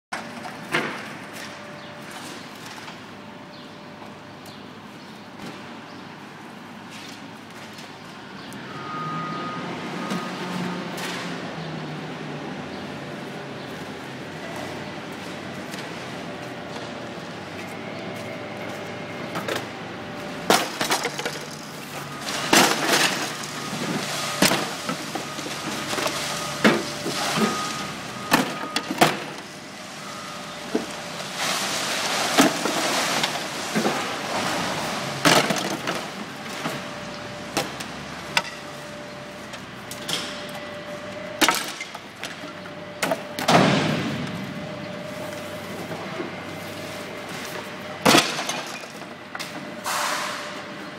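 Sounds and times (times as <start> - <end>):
truck mechanical hum: 0.1 - 50.9
refuse crashing down: 20.5 - 29.4, 30.7 - 36.2.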